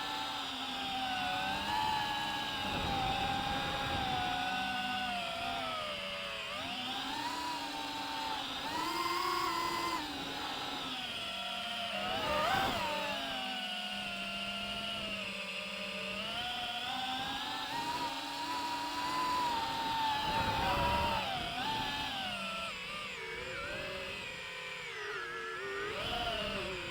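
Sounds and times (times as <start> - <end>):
drone propellers whining: 0.0 - 26.9.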